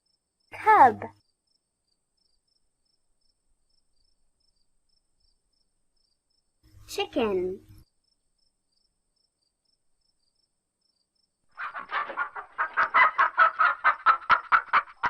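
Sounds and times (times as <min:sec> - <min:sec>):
chicken clucking: 0:11.5 - 0:15.0.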